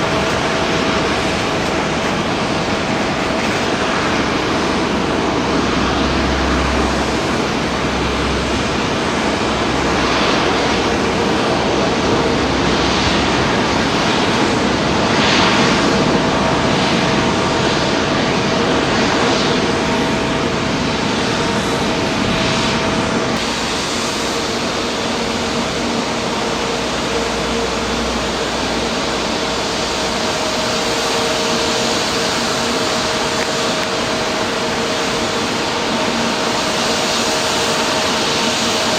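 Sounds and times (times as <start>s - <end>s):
airliner engines rushing: 0.0s - 38.9s.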